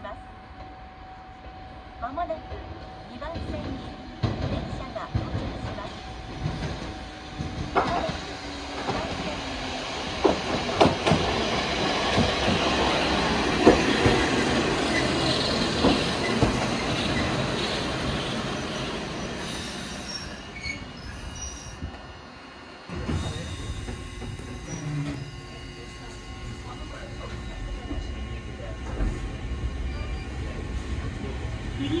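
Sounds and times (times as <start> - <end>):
train running and braking: 0.0 - 32.0
wheels clacking over rail joints: 3.3 - 9.5
wheel and brake squeal: 19.3 - 21.9, 24.6 - 25.4.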